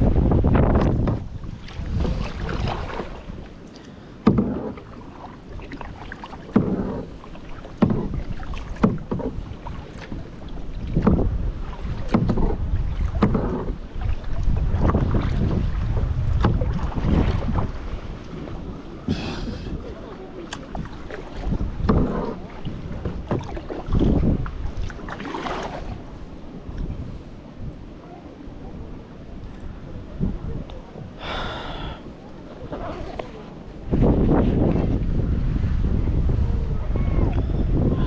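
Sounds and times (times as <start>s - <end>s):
paddle splashing in water: 0.0s - 27.7s, 29.3s - 35.0s
wind rumble on microphone: 0.0s - 38.0s.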